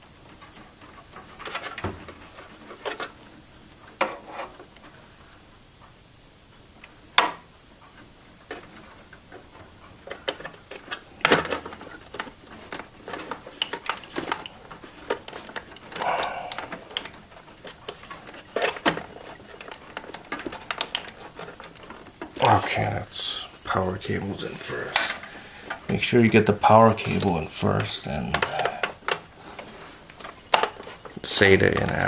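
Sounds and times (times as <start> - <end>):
cables and plastic connectors clicking: 7.9 - 22.7.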